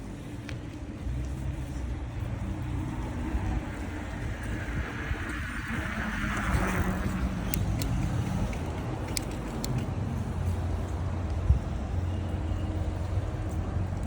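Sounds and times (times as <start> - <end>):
street traffic: 0.0 - 14.0
wind rumble on microphone: 0.0 - 14.0
sharp clicks: 7.4 - 9.9.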